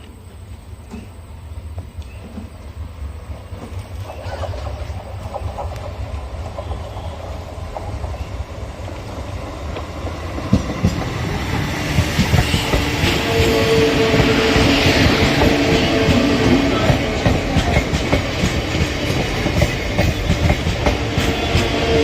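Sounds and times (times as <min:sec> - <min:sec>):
train wheels clattering: 0:03.5 - 0:08.4, 0:09.6 - 0:22.0.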